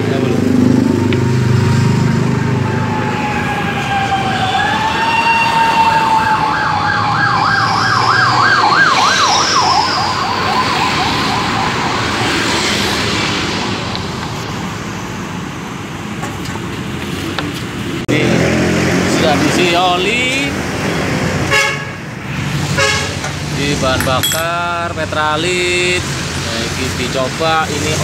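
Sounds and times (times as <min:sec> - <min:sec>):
emergency vehicle siren: 0:00.6 - 0:13.8.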